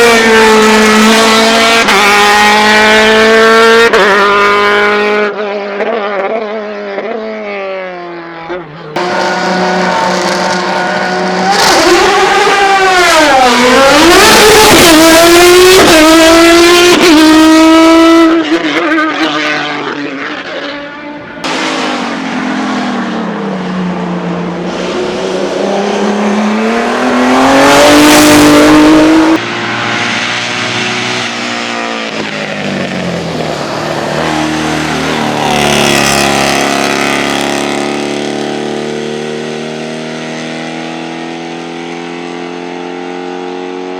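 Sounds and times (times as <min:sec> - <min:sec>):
race car engines at full throttle: 0:00.0 - 0:43.9.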